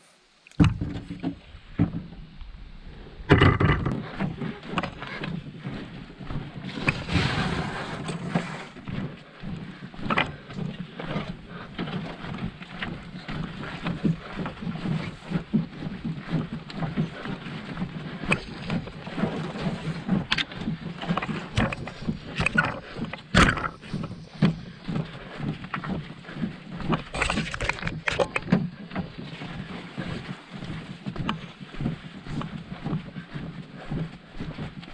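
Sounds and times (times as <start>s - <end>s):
paddle knocking against boat: 0.6s - 2.2s, 3.3s - 5.4s, 11.3s - 31.5s
wind rumbling on microphone: 0.6s - 34.9s
water splashing around paddle: 3.3s - 9.1s, 9.8s - 34.8s.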